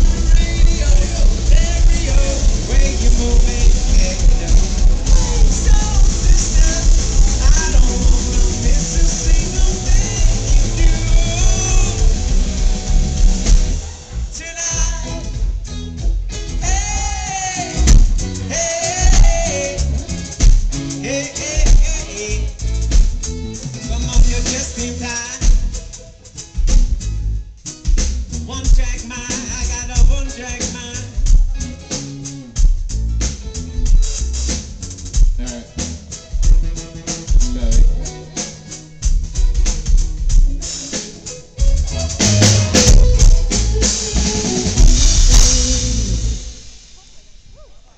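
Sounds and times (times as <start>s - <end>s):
person singing: 0.0s - 13.0s, 16.6s - 22.7s, 23.8s - 25.7s, 37.4s - 38.8s
rock band playing: 0.0s - 47.6s
drum beat and cymbals: 0.0s - 47.9s.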